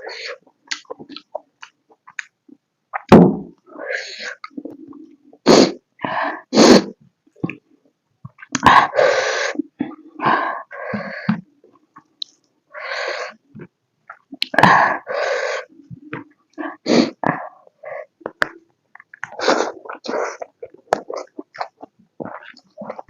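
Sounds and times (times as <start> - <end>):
wet chewing and slurping: 19.0 - 23.0.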